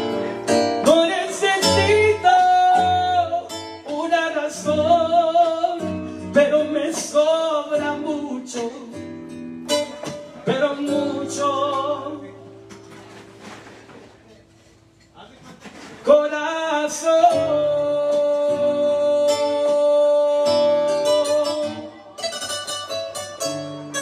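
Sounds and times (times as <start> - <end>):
acoustic guitars playing: 0.0 - 24.0.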